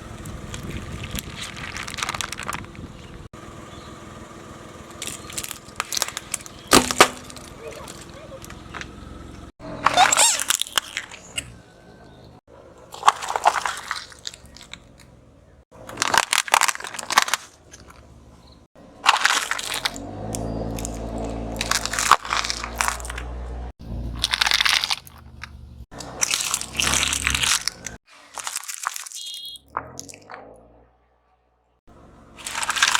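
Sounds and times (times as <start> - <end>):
low engine hum: 0.0 - 10.0, 11.1 - 16.2, 17.0 - 28.0, 29.7 - 32.9
tyre crushing objects: 5.0 - 8.1, 19.0 - 30.4, 32.4 - 32.9.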